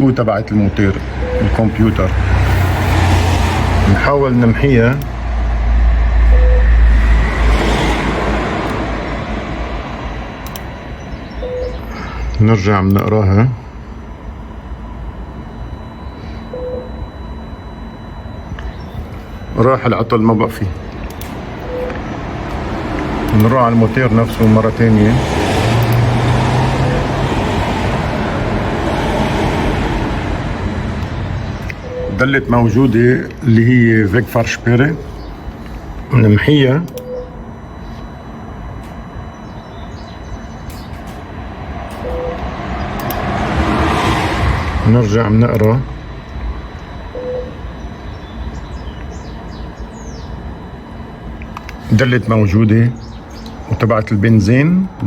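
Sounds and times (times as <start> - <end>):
low hum: 0.0 - 55.0
passing road vehicle rumble: 0.7 - 12.3, 21.1 - 33.0, 40.0 - 48.1.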